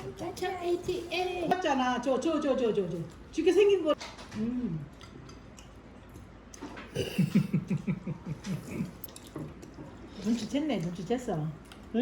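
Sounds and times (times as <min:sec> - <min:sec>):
person laughing: 0:07.0 - 0:09.1.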